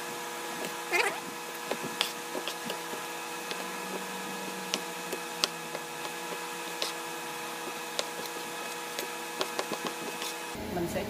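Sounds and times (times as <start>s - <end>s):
electrical hum: 0.0s - 11.0s
knife tapping cutting board: 7.9s - 10.2s.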